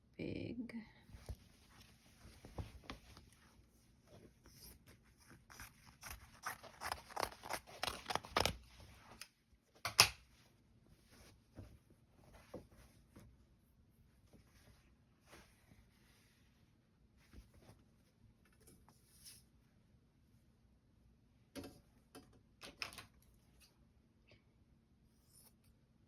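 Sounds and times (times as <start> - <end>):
paper and fabric rustling: 1.1 - 9.2.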